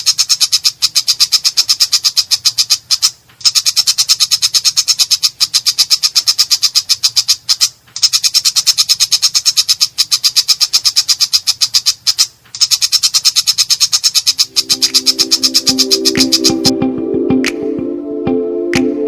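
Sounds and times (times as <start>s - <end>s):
shrike harsh chattering call: 14.1s - 16.7s.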